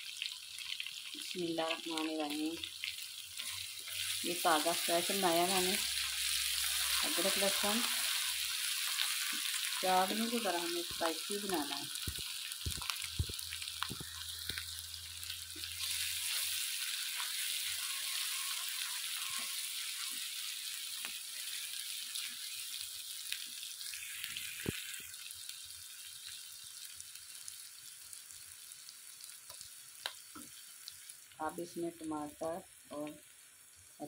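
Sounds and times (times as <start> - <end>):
onions sizzling in hot oil: 0.0 - 34.0.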